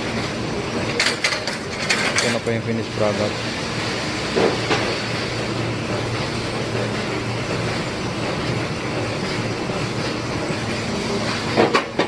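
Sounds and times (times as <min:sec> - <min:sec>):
factory machinery running: 0:00.0 - 0:12.0.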